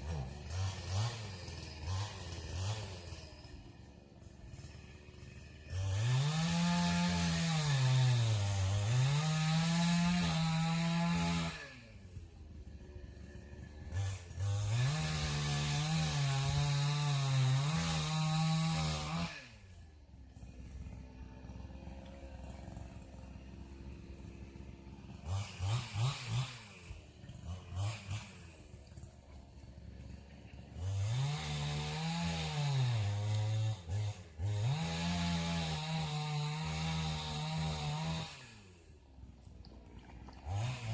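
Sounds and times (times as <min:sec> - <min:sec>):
small engine revving: 0:00.0 - 0:40.9.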